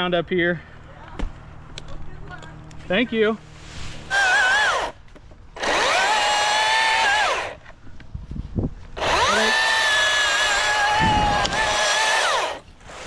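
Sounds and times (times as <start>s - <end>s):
electric chainsaw whining: 4.1s - 5.0s, 5.6s - 7.6s, 9.0s - 13.0s.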